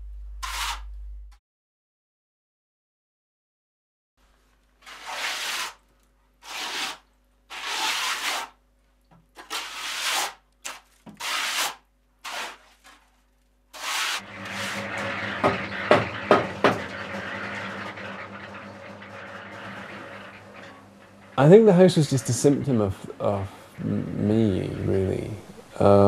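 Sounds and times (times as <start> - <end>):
low hum: 0.0 - 1.4, 14.2 - 26.0
hand tool scraping rough surface: 0.4 - 0.8, 4.8 - 5.8, 6.4 - 8.6, 9.4 - 13.1, 13.8 - 25.5
sharp knocks: 14.6 - 17.6.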